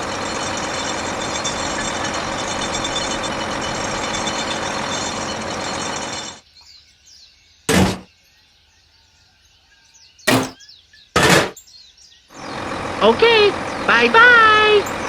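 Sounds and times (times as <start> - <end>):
faint birdsong: 0.2 - 12.8
loud short thump: 10.3 - 10.6.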